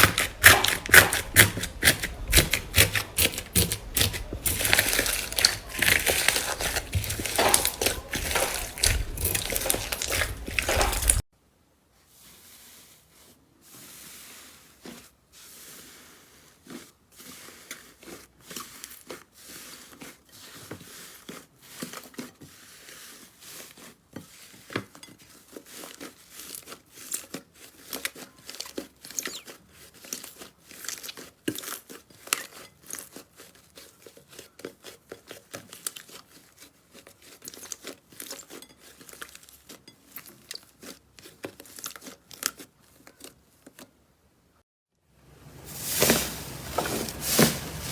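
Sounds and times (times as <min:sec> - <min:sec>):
slime crackling and popping: 0:00.0 - 0:11.2, 0:28.0 - 0:29.5.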